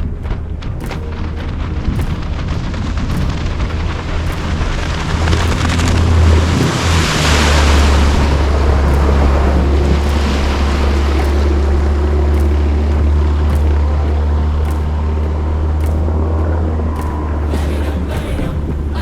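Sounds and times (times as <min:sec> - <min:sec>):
boat engine drone: 0:00.0 - 0:19.0
water rushing: 0:00.0 - 0:19.0
wind buffeting microphone: 0:00.0 - 0:19.0.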